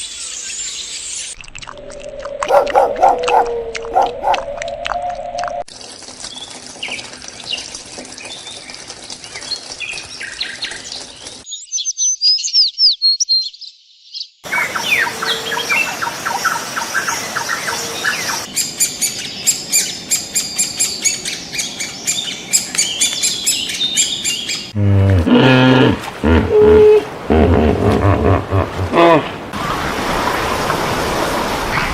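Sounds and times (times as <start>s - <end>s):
low-pitched animal call: 1.8s - 5.5s, 24.8s - 29.4s
birds chirping and twittering: 2.4s - 4.4s, 6.3s - 24.8s.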